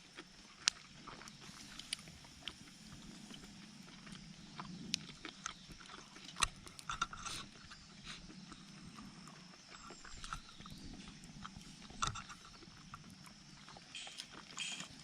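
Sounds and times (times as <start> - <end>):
small clicks and knocks: 6.2 - 7.9, 9.8 - 15.0.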